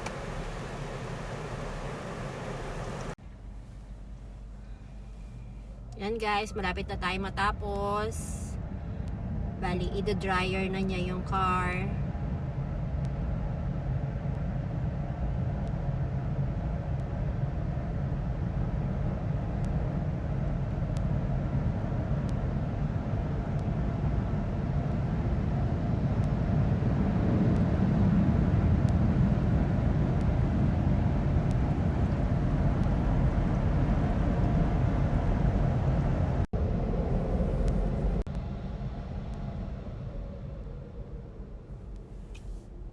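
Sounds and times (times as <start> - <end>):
car wash air dryer blowing: 0.0 - 3.2.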